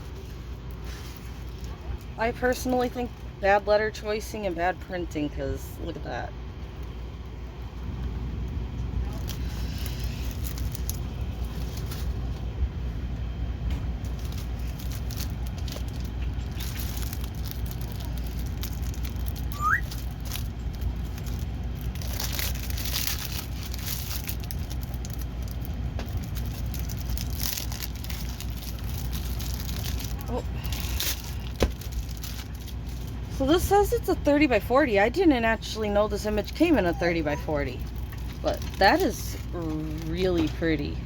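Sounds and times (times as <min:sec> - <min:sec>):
plastic packaging rustling: 0:00.0 - 0:03.2, 0:09.0 - 0:12.5, 0:13.9 - 0:33.7, 0:36.1 - 0:40.9
steady low hum: 0:00.0 - 0:41.0.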